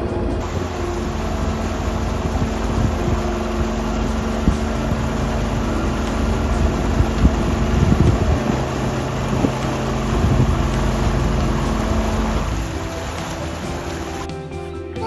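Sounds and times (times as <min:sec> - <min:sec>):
engine knocks: 0:00.0 - 0:14.4
vehicle engine humming: 0:00.0 - 0:14.4.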